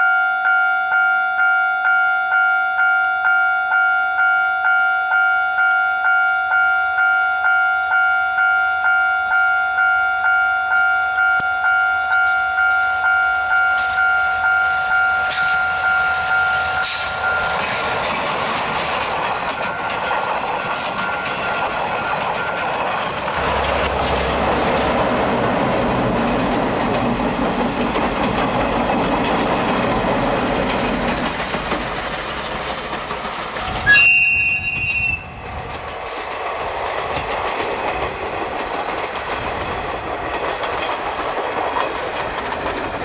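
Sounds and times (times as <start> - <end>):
level crossing alarm ringing: 0.0 - 29.0
train passing with rumble: 5.2 - 43.0.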